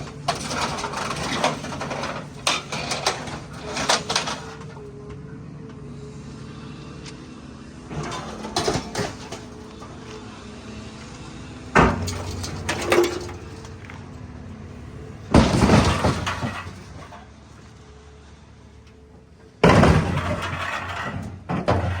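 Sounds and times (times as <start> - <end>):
metal crashing: 0.0 - 4.8, 7.9 - 10.0, 11.8 - 13.7, 15.3 - 17.3, 19.6 - 22.0
excavator engine running: 0.0 - 22.0.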